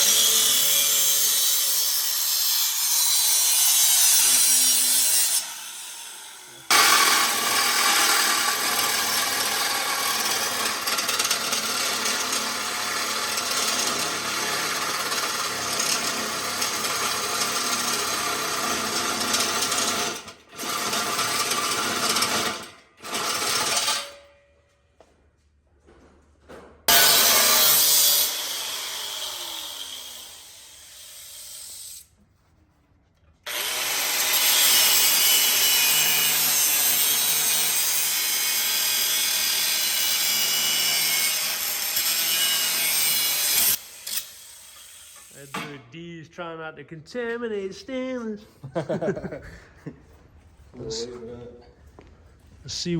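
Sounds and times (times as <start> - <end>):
power tool cutting metal: 0.0 - 24.2, 26.9 - 32.0, 33.5 - 45.8.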